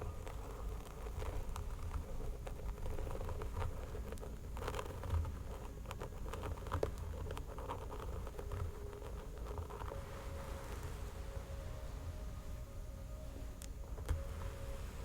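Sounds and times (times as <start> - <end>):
fingernails scratching hair and skin: 0.1 - 11.6.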